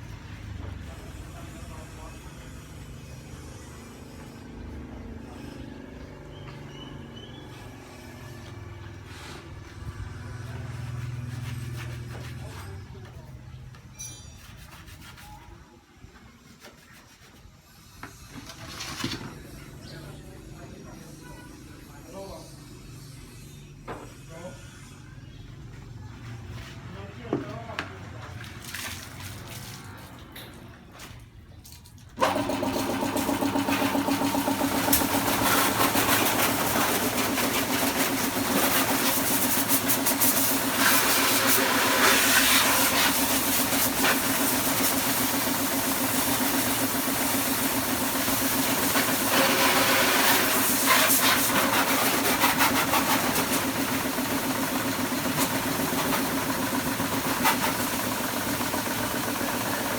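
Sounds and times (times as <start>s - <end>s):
pressure washer motor humming: 32.2s - 59.9s
water jet hissing: 32.2s - 59.9s.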